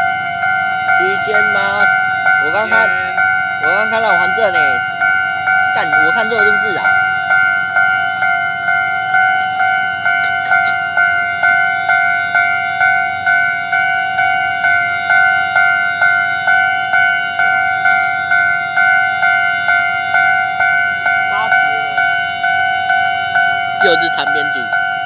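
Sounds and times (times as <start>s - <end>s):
level crossing bell ringing: 0.0s - 25.0s.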